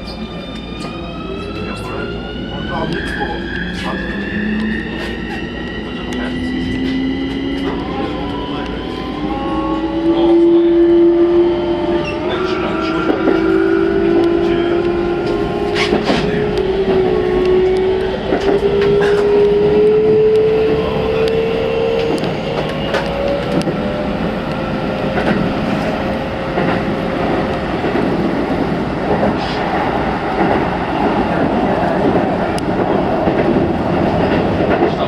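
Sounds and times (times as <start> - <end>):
train rumbling: 0.0 - 35.0
rail clicks: 11.8 - 35.0.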